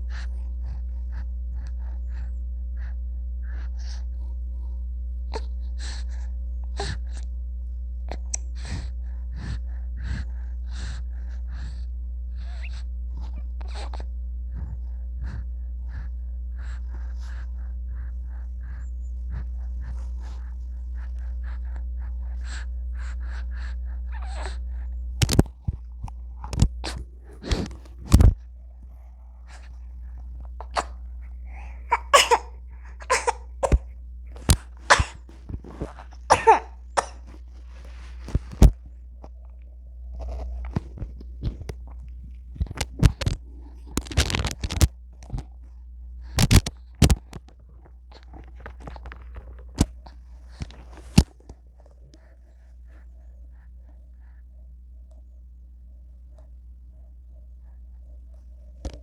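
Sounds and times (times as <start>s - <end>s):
steady low hum: 0.0s - 59.0s
baby vocal noises: 24.1s - 24.6s, 30.6s - 37.3s
baby coughing and sneezing: 30.8s - 31.0s, 31.9s - 33.9s, 34.9s - 35.2s, 36.3s - 37.3s.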